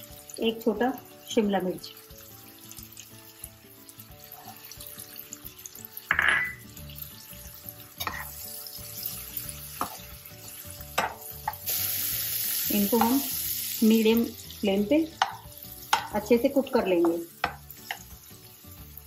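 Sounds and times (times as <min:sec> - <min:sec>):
vegetables sizzling in a pan: 0:00.0 - 0:19.0
metal spoon scraping a pan: 0:04.2 - 0:05.0, 0:08.0 - 0:11.6.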